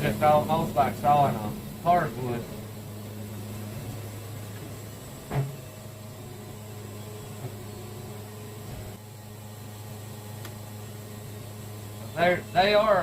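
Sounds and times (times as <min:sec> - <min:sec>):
band sawmill cutting log: 0:00.0 - 0:13.0
short thump: 0:05.3 - 0:05.6.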